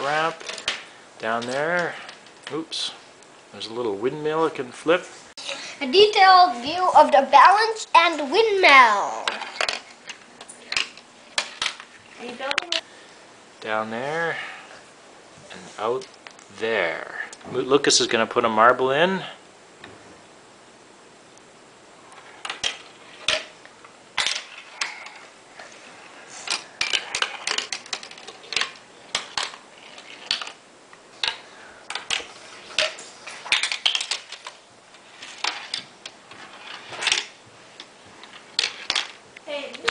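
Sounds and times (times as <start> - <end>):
marble clattering down plastic run: 22.4 - 23.6, 24.2 - 25.2, 26.5 - 30.6, 31.2 - 37.3, 38.3 - 39.2.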